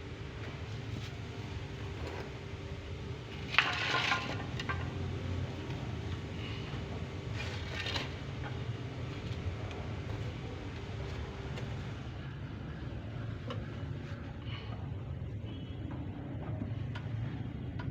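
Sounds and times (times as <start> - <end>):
steady low hum: 0.0 - 17.9
small hard objects clattering: 3.3 - 6.7, 7.3 - 9.7.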